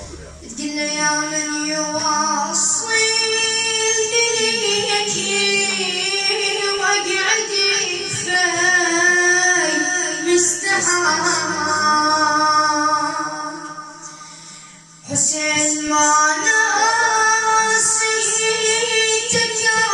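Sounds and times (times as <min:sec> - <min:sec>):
person singing a lament: 0:08.4 - 0:13.6.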